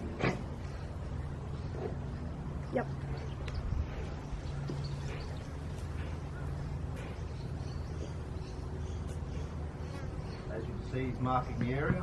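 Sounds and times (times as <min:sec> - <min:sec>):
low outdoor rumble: 0:00.0 - 0:12.0
bird chirps: 0:02.6 - 0:12.0.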